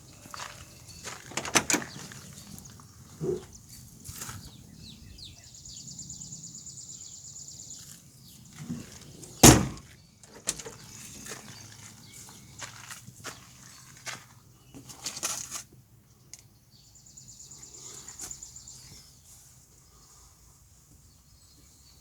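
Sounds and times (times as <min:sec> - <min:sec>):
heavy thud: 0:09.4 - 0:09.9.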